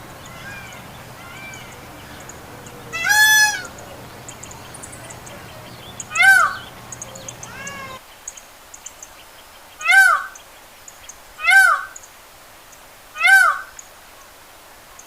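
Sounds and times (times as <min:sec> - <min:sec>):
peacock calling: 0:00.0 - 0:08.0, 0:09.8 - 0:10.4, 0:11.4 - 0:12.0, 0:13.2 - 0:13.8.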